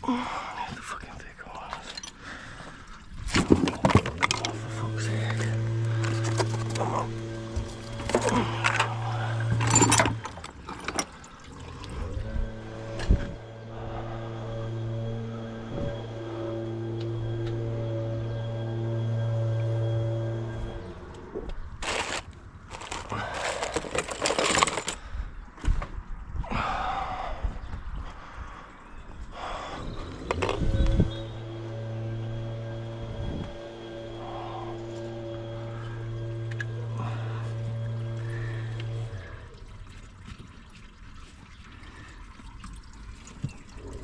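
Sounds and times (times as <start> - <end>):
car parts scraping and rattling: 3.2 - 11.2, 21.8 - 25.0
machine hum spinning up: 4.0 - 10.3, 11.6 - 25.0, 29.4 - 39.6.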